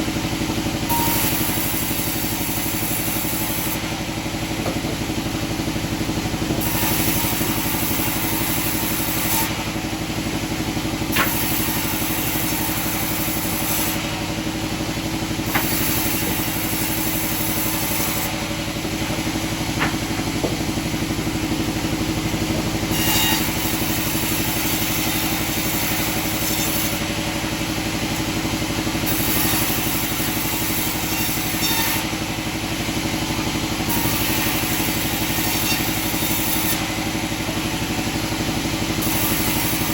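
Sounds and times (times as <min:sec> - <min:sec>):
sawmill machinery humming: 0:00.0 - 0:39.9
sharp knocks: 0:04.6 - 0:05.1, 0:19.7 - 0:20.8.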